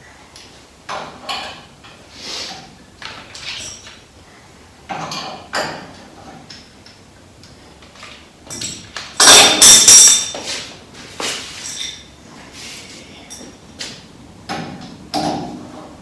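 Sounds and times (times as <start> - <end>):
metal tools clanking: 8.5 - 10.7, 11.4 - 12.2, 12.8 - 14.0.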